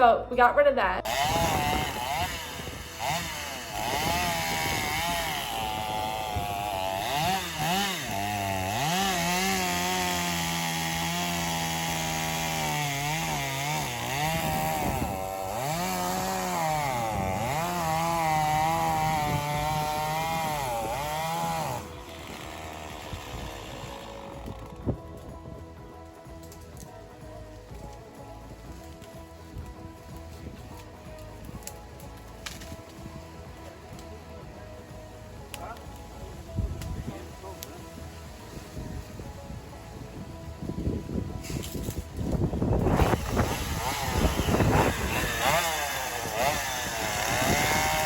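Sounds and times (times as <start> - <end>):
chainsaw cutting wood: 1.0 - 25.3, 27.7 - 34.4, 40.8 - 48.0.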